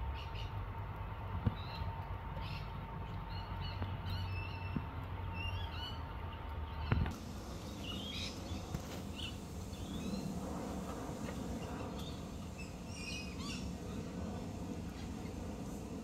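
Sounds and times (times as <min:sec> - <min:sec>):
birds chirping: 0:01.5 - 0:16.0
low rumble: 0:05.7 - 0:16.0.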